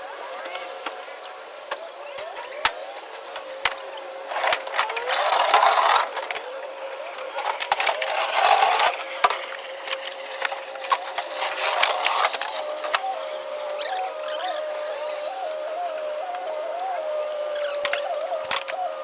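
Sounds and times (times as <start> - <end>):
steady high tone: 4.8 - 18.6.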